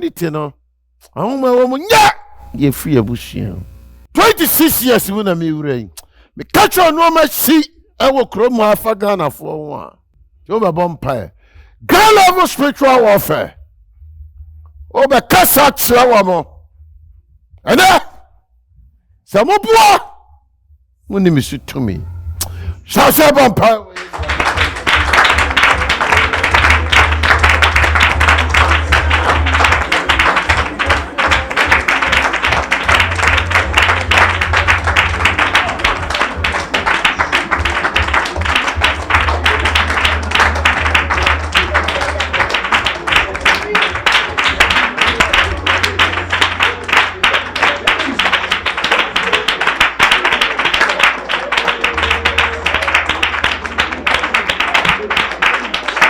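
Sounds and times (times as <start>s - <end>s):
congregation clapping fast: 2.0s - 5.3s, 21.4s - 56.0s
music with deep bass: 21.2s - 22.9s, 24.2s - 49.2s.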